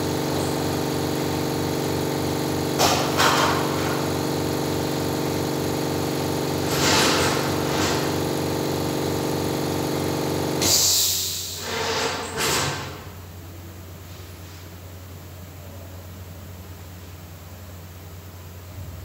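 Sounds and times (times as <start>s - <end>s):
short hissing bursts: 10.6s - 12.2s.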